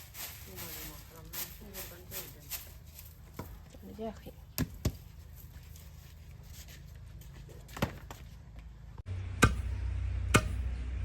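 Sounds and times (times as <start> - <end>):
low steady hum: 8.4 - 11.0
blade chopping strikes: 9.3 - 10.8.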